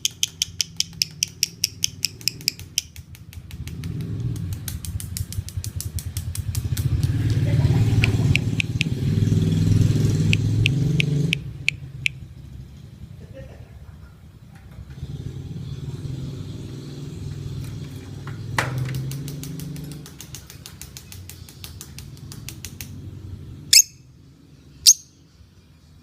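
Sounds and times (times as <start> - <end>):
lovebird chattering call: 0.0 - 2.9, 23.7 - 24.0, 24.8 - 25.2
shrill bird chirps: 23.7 - 25.4.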